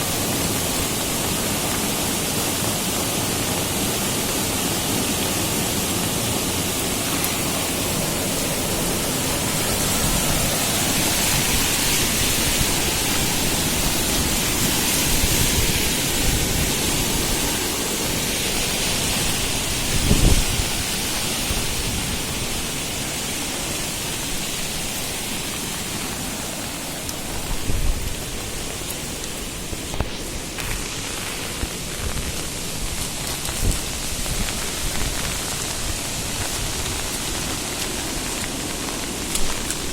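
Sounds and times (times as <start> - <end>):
flooded river rushing: 0.0 - 39.9
heavy rain: 0.0 - 39.9.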